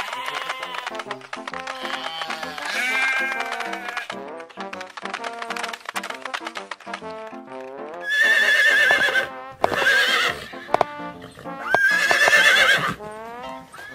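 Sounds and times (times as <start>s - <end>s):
horse whinnying: 0.0s - 1.1s, 1.7s - 4.2s, 8.0s - 13.0s
light background music: 0.0s - 13.9s.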